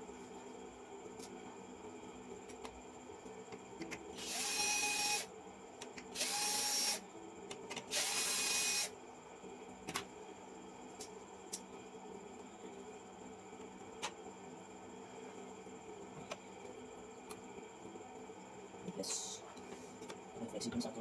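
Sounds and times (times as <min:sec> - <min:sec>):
small electric motor whining: 0:04.2 - 0:05.3, 0:06.2 - 0:07.0, 0:07.9 - 0:08.9.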